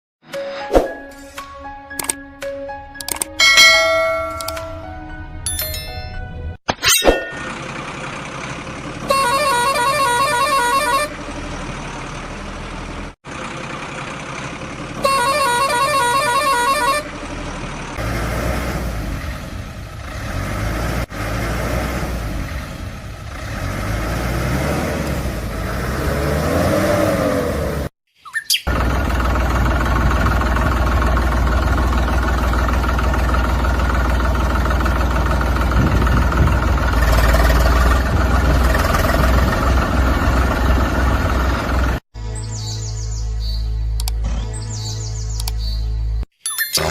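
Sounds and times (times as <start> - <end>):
engine running: 2.8 - 6.4, 7.2 - 27.9, 28.7 - 42.0, 43.8 - 46.2
truck horn blaring: 8.9 - 11.6, 14.9 - 18.2
low engine drone: 28.7 - 46.9.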